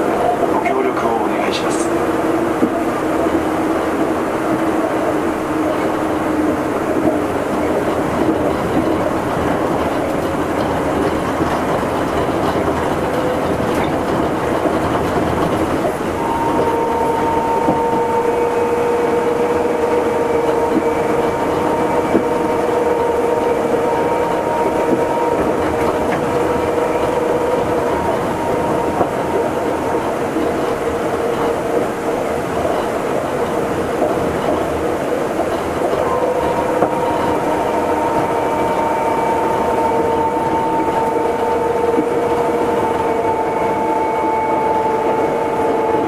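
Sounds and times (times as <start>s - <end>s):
steady train whine: 0.0s - 46.0s
train tyres rumbling on guideway: 0.0s - 46.0s.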